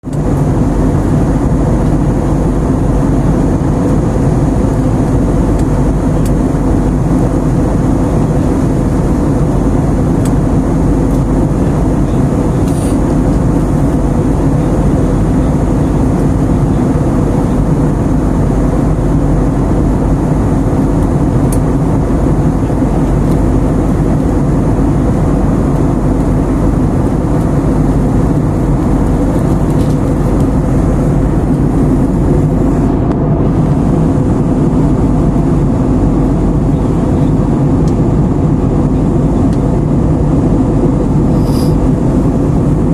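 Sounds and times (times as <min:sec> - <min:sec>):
vehicle engine rumbling: 0:00.0 - 0:42.9.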